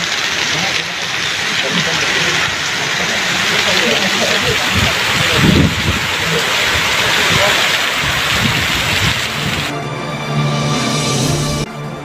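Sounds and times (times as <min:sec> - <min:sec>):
heavy rain and hail: 0:00.0 - 0:09.8
low rumbling: 0:00.3 - 0:09.7.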